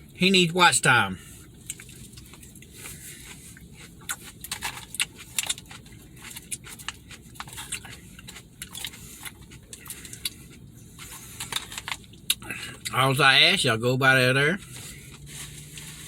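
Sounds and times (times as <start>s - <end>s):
chewing and lip-smacking: 1.4s - 13.0s.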